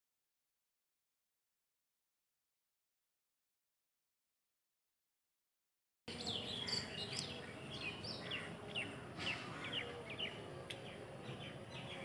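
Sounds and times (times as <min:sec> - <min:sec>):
faint outdoor background noise: 0:06.1 - 0:12.0
small birds chirping: 0:06.1 - 0:12.0.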